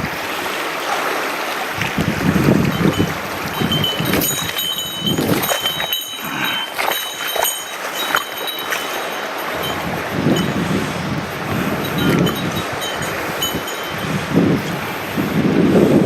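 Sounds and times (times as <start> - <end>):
stream water rushing: 0.0 - 16.0
wind buffeting microphone: 1.7 - 16.0
sharp clicks and clinks: 2.7 - 10.6, 11.8 - 14.1.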